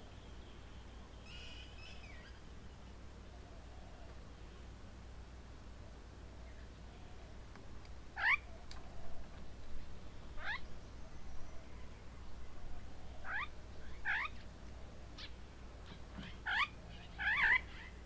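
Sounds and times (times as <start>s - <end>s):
bird harsh meow-like calls: 13.1s - 14.4s, 15.2s - 18.0s.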